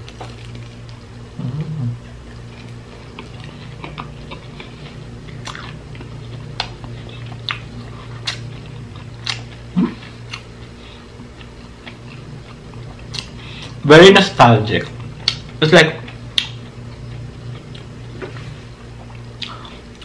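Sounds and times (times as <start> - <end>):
sticky wet chewing: 0.0 - 13.8
steady low hum: 0.0 - 20.0.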